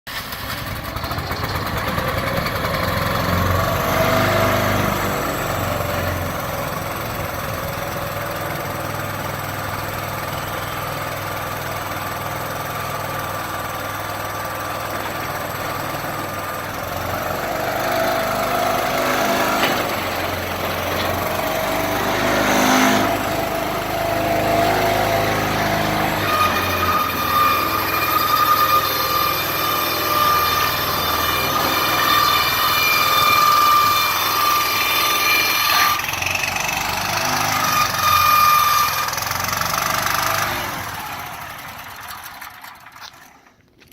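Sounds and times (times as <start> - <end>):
engine idling: 0.1 - 34.8.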